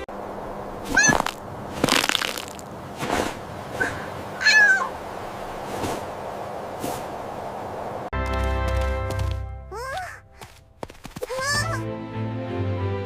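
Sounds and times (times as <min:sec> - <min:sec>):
steady background hiss: 0:00.0 - 0:08.1
cat meowing: 0:00.9 - 0:01.3, 0:04.4 - 0:04.9.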